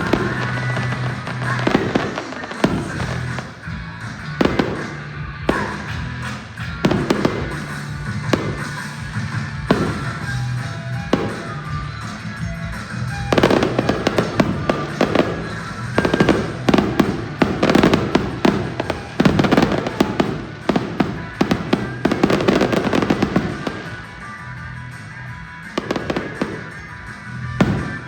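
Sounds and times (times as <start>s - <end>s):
fireworks bursting: 0.0s - 28.0s
music playing: 0.0s - 28.0s.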